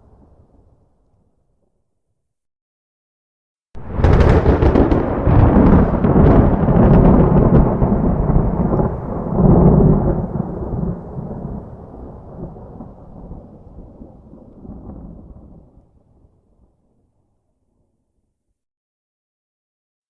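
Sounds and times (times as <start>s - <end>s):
thunder rumbling: 3.8s - 16.4s.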